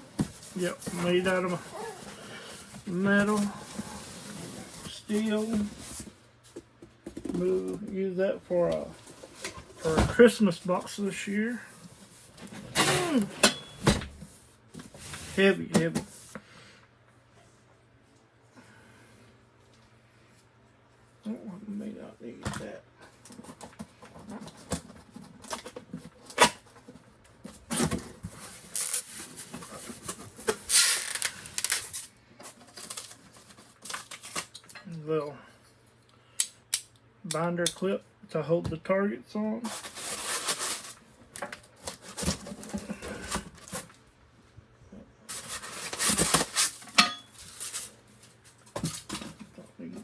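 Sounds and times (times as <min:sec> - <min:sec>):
packing materials rustling and scraping: 0:00.0 - 0:06.5, 0:23.1 - 0:34.6, 0:39.6 - 0:44.0, 0:45.3 - 0:50.0
packaging rustling: 0:28.2 - 0:34.6.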